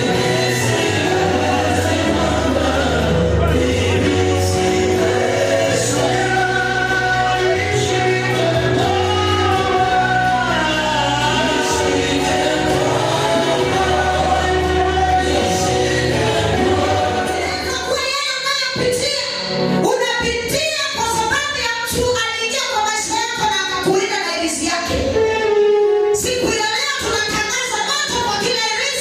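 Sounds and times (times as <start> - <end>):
sustained bass notes: 0.0 - 17.9
choir singing gospel: 0.0 - 19.9.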